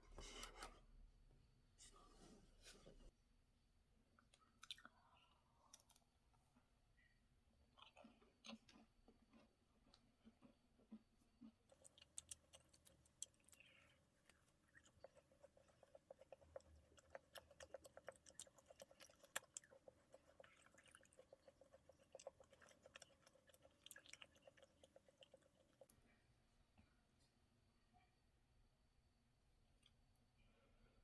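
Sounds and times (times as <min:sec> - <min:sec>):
crisp chewing of macarons: 0:07.7 - 0:26.1.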